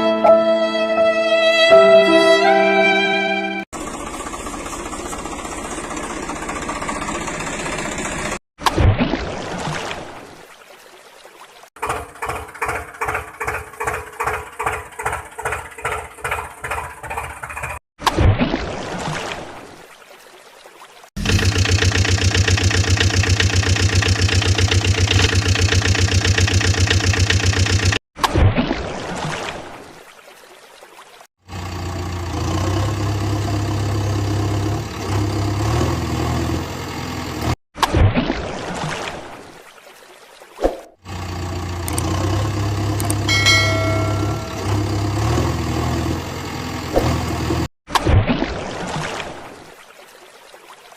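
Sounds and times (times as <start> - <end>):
cartoon engine idling: 3.8 - 8.4, 21.2 - 28.0, 41.1 - 47.0
bell-like ding: 43.3 - 45.2.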